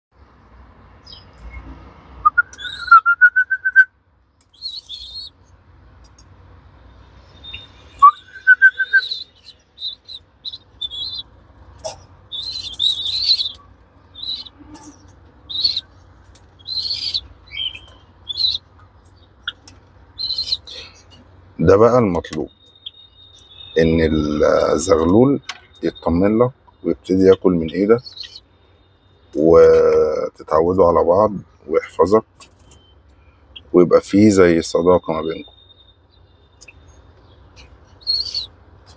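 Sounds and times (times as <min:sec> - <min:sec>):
young pigeon peeping: 0:01.0 - 0:06.3, 0:06.9 - 0:38.9
lower rising trilling call: 0:02.2 - 0:03.9, 0:04.6 - 0:05.4, 0:07.2 - 0:16.0, 0:16.6 - 0:21.0, 0:37.9 - 0:38.5.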